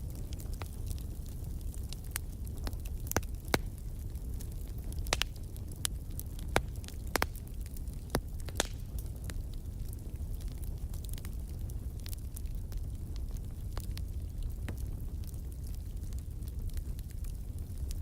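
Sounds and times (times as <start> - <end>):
low fire rumble: 0.0 - 18.0
wood fire crackling: 0.0 - 18.0.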